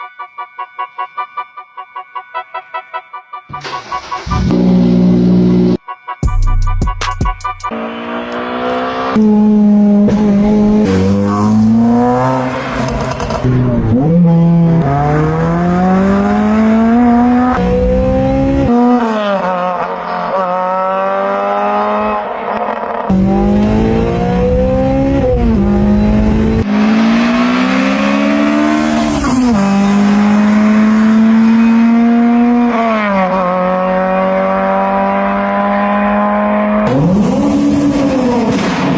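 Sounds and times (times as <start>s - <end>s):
car engine accelerating hard: 4.0s - 5.8s, 7.7s - 38.9s.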